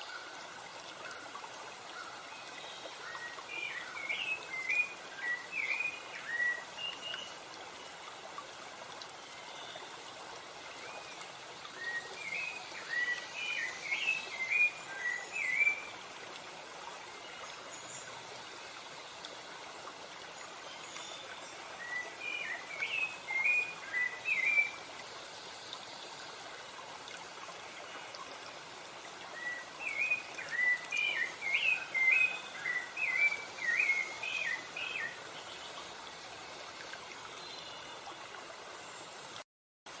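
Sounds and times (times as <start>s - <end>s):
stream rushing: 0.0s - 40.0s
songbird chirping: 10.7s - 16.0s, 29.3s - 35.8s.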